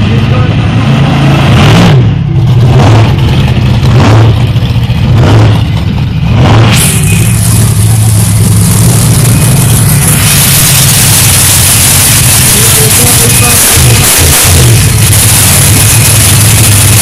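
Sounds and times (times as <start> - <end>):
steady loud rushing noise: 0.0 - 17.0
truck engine revving: 0.0 - 17.0.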